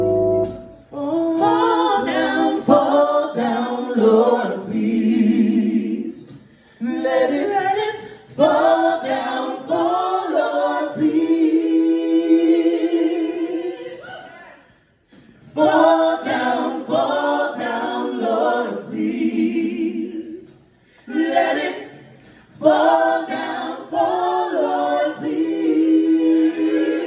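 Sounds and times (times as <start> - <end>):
a cappella choir singing: 0.0 - 27.0
choir breath: 6.0 - 7.4, 12.4 - 27.0.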